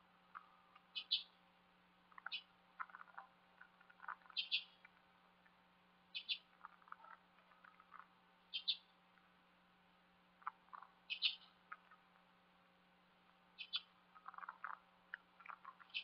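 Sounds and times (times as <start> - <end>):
faint bird chirps: 0.3 - 1.4, 2.1 - 5.0, 6.1 - 9.0, 10.4 - 12.1, 13.5 - 16.0.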